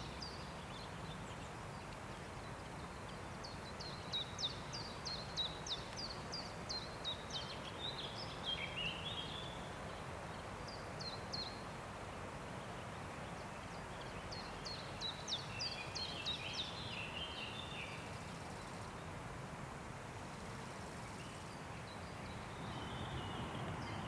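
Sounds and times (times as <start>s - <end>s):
songbird calling: 21.2s - 24.0s.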